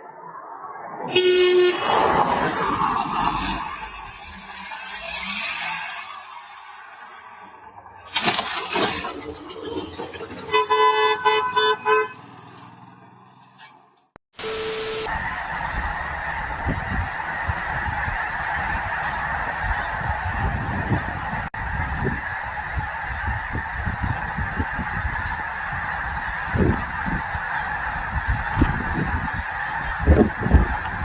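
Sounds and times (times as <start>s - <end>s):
flock of birds calling: 14.9s - 31.0s
low rumbles and thumps: 15.4s - 22.4s.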